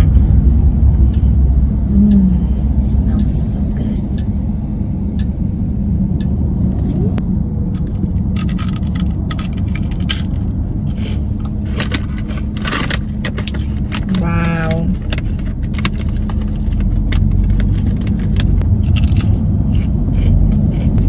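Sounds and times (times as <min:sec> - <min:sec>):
car cabin road noise: 0:00.0 - 0:21.0
crunchy snack chewing: 0:07.7 - 0:10.5, 0:14.8 - 0:21.0.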